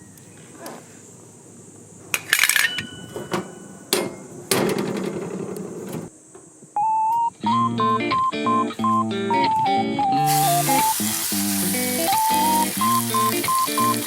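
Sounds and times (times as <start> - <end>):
metallic knocks and clanks: 2.2 - 6.1.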